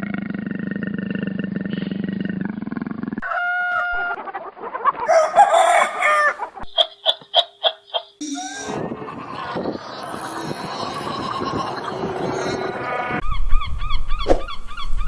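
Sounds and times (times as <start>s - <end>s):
chicken crowing and clucking: 3.2s - 9.4s.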